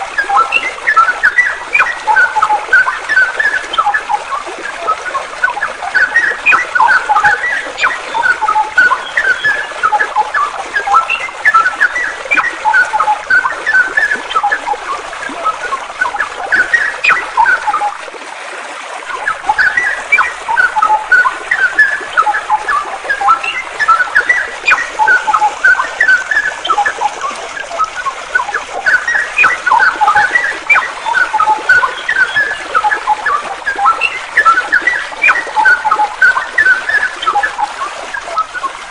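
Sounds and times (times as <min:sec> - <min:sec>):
songbirds chirping: 0:00.0 - 0:18.0, 0:18.9 - 0:38.9
flowing water: 0:00.0 - 0:38.9.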